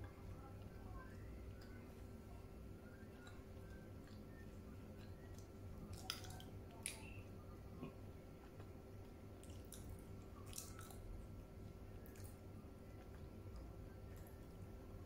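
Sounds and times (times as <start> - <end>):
faint steady hum: 0.0 - 15.0
person chewing dates: 3.1 - 14.8.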